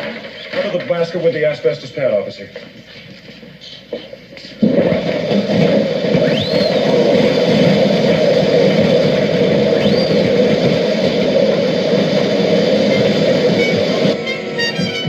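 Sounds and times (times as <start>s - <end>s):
loud rushing hiss: 4.9s - 15.0s
rising and falling whistle: 6.2s - 7.9s, 9.5s - 11.2s, 12.6s - 15.0s.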